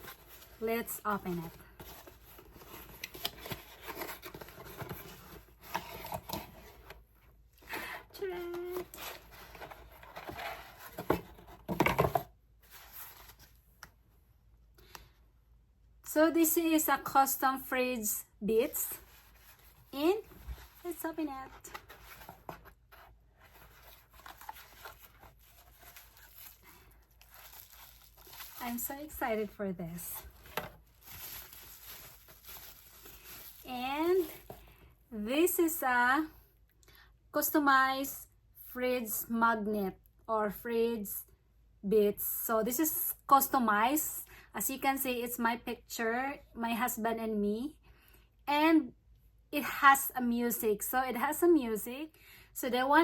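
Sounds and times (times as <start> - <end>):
package rustling and scraping: 7.6 - 13.6, 18.9 - 34.7.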